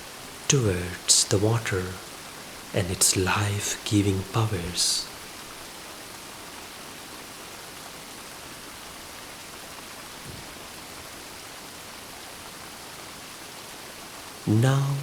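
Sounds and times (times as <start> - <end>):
gentle rain falling: 0.0 - 15.0.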